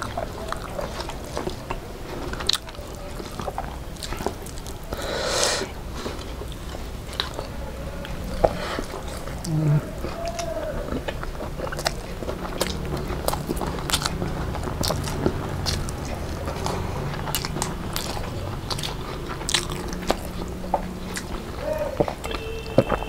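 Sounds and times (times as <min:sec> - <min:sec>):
mouth clicks: 0:00.0 - 0:05.9, 0:06.5 - 0:23.0
lip smacks: 0:00.0 - 0:23.0
wet chewing: 0:00.0 - 0:23.0
rushing breath: 0:04.8 - 0:10.9.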